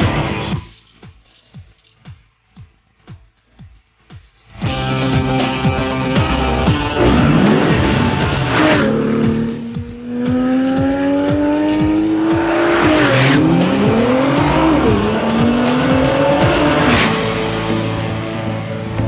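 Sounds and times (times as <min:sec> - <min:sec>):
music with steady beat: 0:00.0 - 0:19.0
sports car accelerating: 0:05.9 - 0:19.0.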